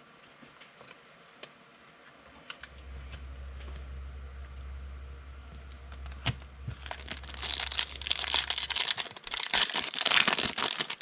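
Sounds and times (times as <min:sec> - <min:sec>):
wrapper crinkling and rustling: 0:06.7 - 0:11.0
foil pack tearing: 0:06.8 - 0:11.0.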